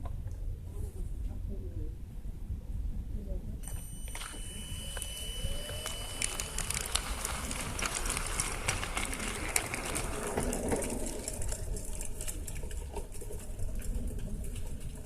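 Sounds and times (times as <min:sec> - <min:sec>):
steady low rumble: 0:00.0 - 0:15.0
model train wheels clicking: 0:03.6 - 0:15.0.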